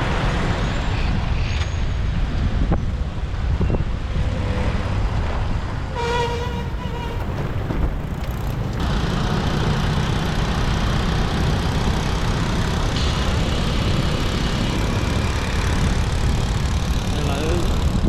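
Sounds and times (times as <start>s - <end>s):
road noise: 0.0s - 18.0s
motorbike engine running: 7.8s - 18.0s.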